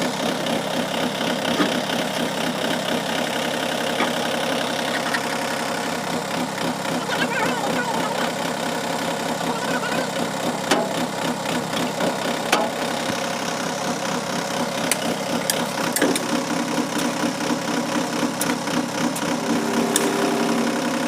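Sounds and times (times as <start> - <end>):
tractor diesel engine running: 0.0 - 21.0
steady engine note: 1.5 - 16.0, 16.7 - 21.0
sharp clicks and knocks: 14.9 - 16.4.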